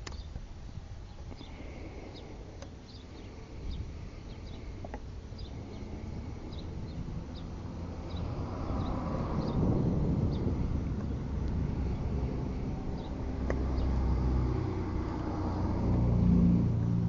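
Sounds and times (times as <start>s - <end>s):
sharp clicks: 0.0s - 0.4s
small birds chirping: 0.0s - 16.7s
low background rumble: 0.0s - 17.0s
passing vehicle: 3.6s - 17.0s.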